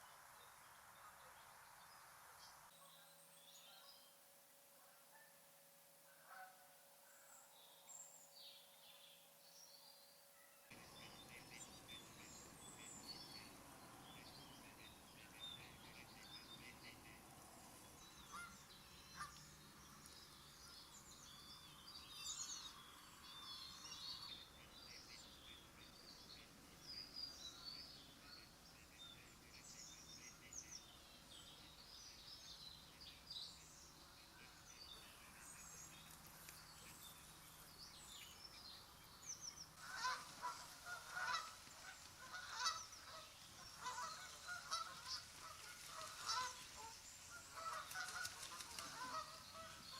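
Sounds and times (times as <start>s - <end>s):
small birds chirping: 10.7s - 49.9s
geese honking: 39.8s - 49.9s.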